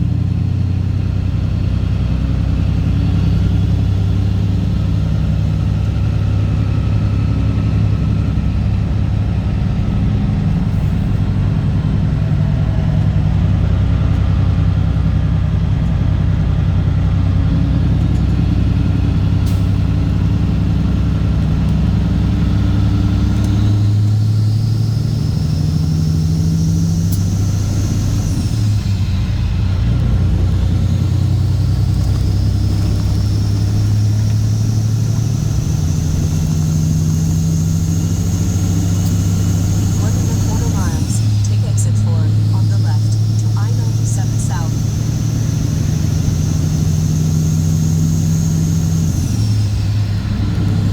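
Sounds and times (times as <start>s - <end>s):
diesel truck engine running: 0.0s - 50.9s.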